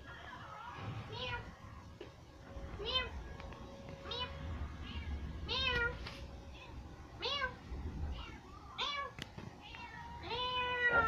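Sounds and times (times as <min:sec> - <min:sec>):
cat meowing: 0:00.6 - 0:01.6, 0:02.8 - 0:03.2, 0:04.0 - 0:06.0, 0:07.2 - 0:11.0.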